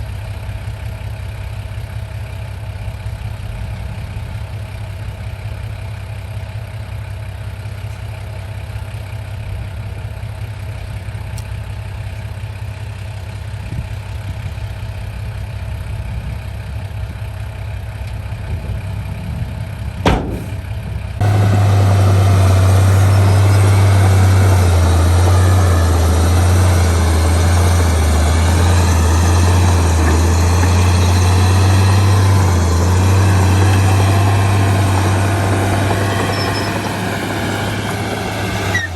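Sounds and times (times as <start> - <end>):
heavy diesel engine idling: 0.0 - 38.9
sharp knock: 20.0 - 20.6.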